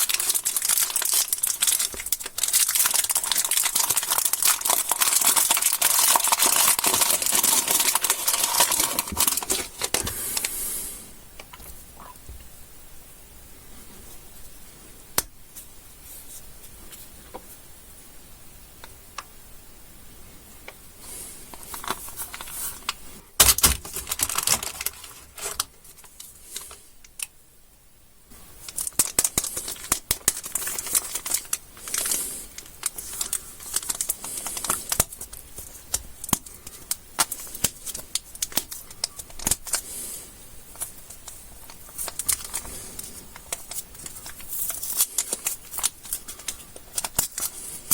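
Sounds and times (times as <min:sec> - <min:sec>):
plastic wrappers crinkling: 0:00.0 - 0:10.6, 0:21.0 - 0:27.3, 0:28.6 - 0:47.9.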